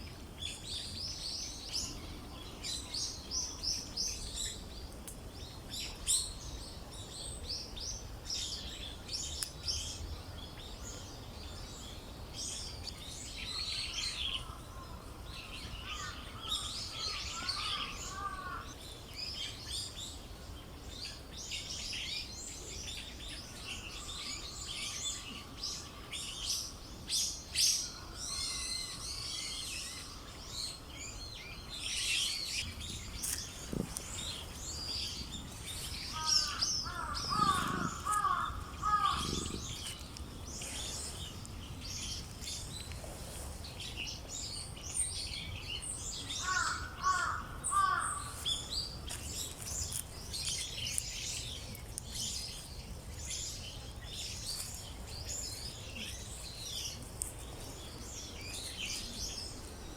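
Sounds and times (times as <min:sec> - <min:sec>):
small birds chirping: 0:00.0 - 0:59.9
lower repeated bird calls: 0:12.5 - 0:20.0, 0:20.6 - 0:43.1, 0:43.7 - 0:59.9.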